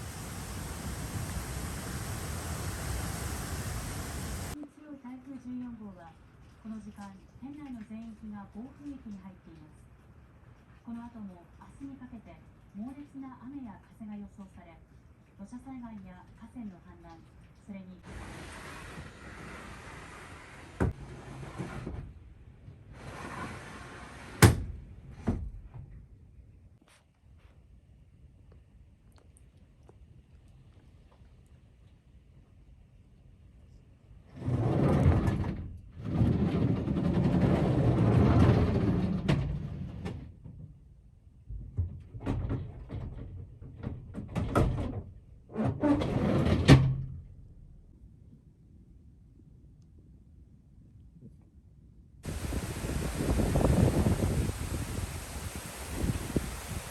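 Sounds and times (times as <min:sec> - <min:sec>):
wind and rain gusting: 0:00.0 - 0:04.6, 0:52.2 - 0:56.9
storm shutters banging: 0:52.2 - 0:56.9.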